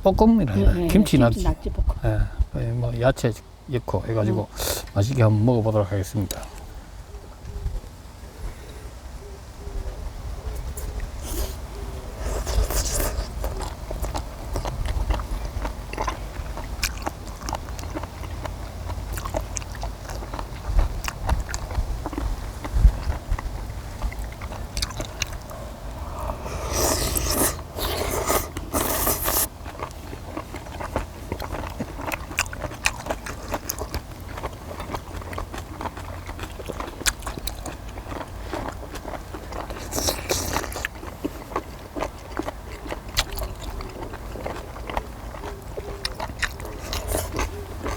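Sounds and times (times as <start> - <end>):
people chewing food: 3.3 - 47.9
wet clicks and crunches: 24.0 - 25.5.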